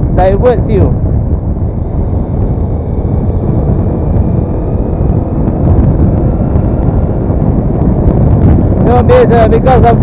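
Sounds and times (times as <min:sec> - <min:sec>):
wind rush on microphone: 0:00.0 - 0:10.0.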